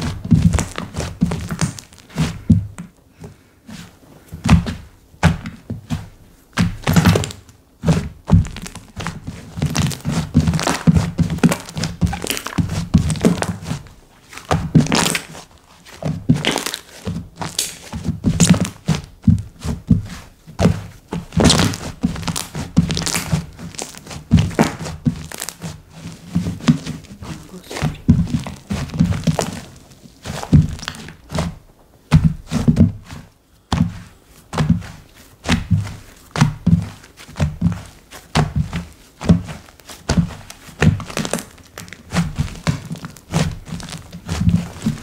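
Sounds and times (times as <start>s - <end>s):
slime squishing and popping: 8.3s - 13.7s, 14.3s - 15.4s, 16.2s - 19.1s, 21.3s - 25.7s, 26.6s - 31.5s, 39.3s - 45.0s.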